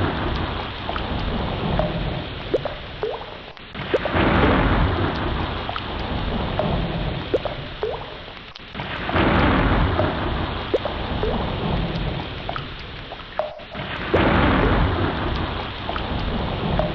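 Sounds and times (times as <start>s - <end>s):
sea waves surging: 0.0s - 16.9s.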